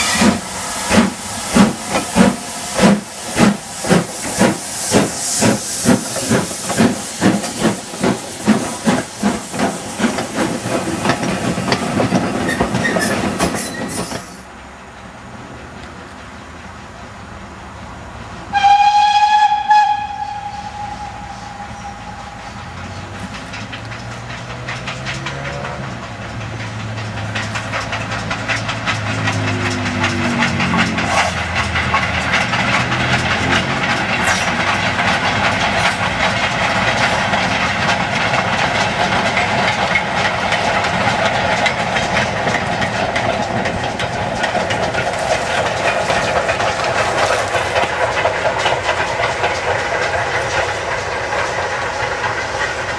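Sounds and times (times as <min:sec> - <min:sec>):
locomotive exhaust: 0:00.0 - 0:14.5, 0:18.5 - 0:52.9
steam hiss: 0:00.0 - 0:14.5, 0:18.5 - 0:52.9
train wheels clattering on rails: 0:00.0 - 0:17.1, 0:17.8 - 0:52.9
steam locomotive whistle: 0:18.5 - 0:22.8.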